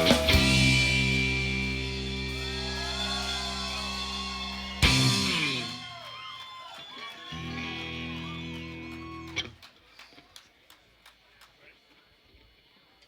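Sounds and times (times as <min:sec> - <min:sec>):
rock band electric guitar: 0:00.0 - 0:06.1, 0:07.3 - 0:09.6
people clapping: 0:00.0 - 0:12.3.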